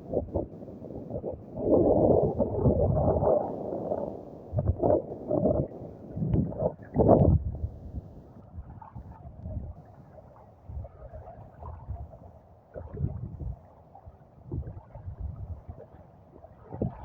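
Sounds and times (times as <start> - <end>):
wind buffeting microphone: 0.0 - 9.9, 12.8 - 13.6, 14.4 - 15.8, 16.6 - 17.0.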